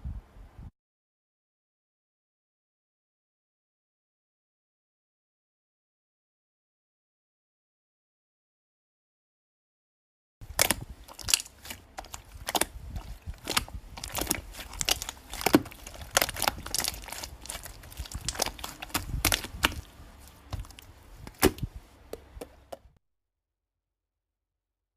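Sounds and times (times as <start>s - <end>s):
slime squished with clicks and pops: 10.5s - 19.9s.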